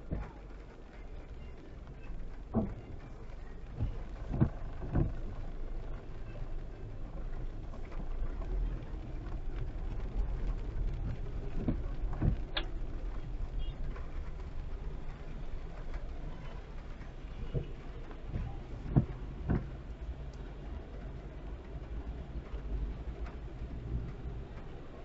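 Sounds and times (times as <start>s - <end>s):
car road and engine rumble: 0.0s - 25.0s
dull thumps: 2.5s - 3.0s, 18.3s - 19.8s.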